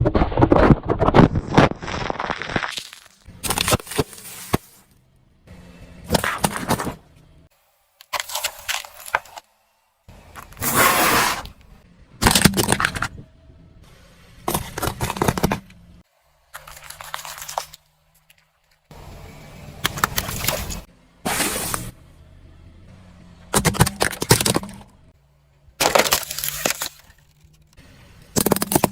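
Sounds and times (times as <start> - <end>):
tyre crushing objects: 0.1 - 4.8, 6.1 - 7.0, 25.8 - 27.2
faint low engine hum: 3.3 - 8.0, 9.0 - 10.6, 11.5 - 28.9.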